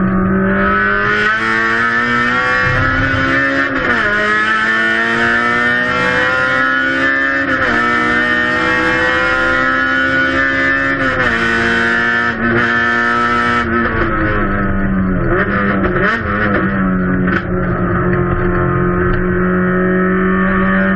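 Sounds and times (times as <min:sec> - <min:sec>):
race car engine shifting gears: 0:00.7 - 0:10.1.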